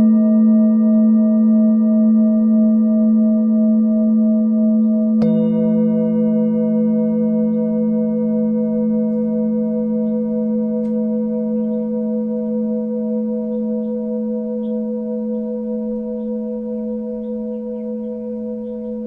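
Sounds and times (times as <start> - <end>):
singing bowl ringing: 0.0 - 19.0
small birds chirping: 13.4 - 19.0.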